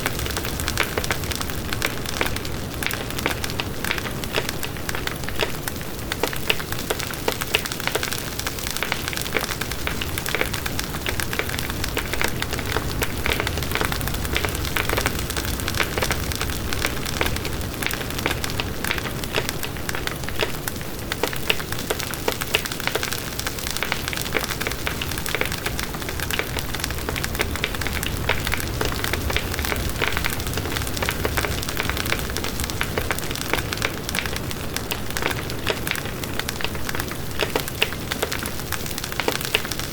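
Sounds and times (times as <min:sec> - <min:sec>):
wood crackling and popping: 0:00.0 - 0:39.9
low rush of flame: 0:24.6 - 0:34.9.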